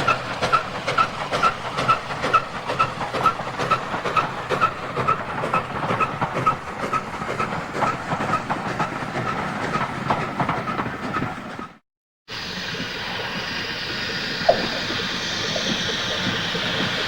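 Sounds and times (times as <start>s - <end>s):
train wheels clattering over rail joints: 0.0s - 11.8s.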